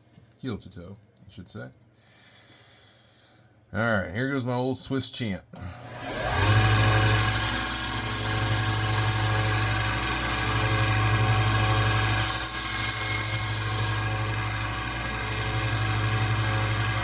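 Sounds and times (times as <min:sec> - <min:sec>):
belt sander motor hum: 0:05.8 - 0:17.0
blade grinding on sanding belt: 0:06.0 - 0:17.0.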